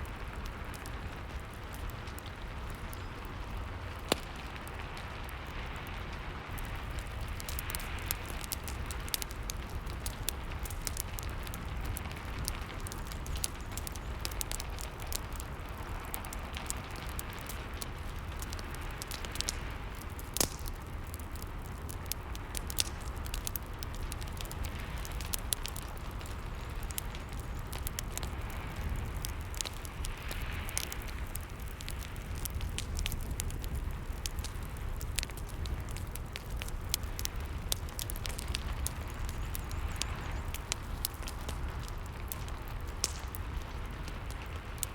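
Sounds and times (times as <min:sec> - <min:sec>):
steady hiss and low rumble: 0:00.0 - 0:44.9
wood fire crackling and popping: 0:00.0 - 0:44.9.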